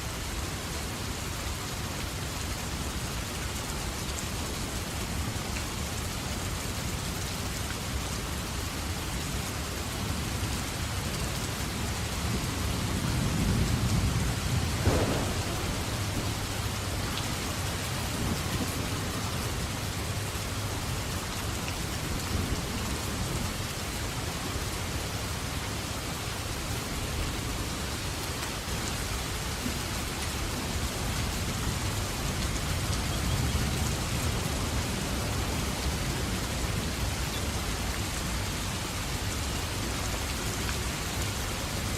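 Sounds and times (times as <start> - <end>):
steady rain: 0.0 - 41.9
thunder rumble: 12.2 - 21.0
sharp thunder crack: 14.6 - 19.2.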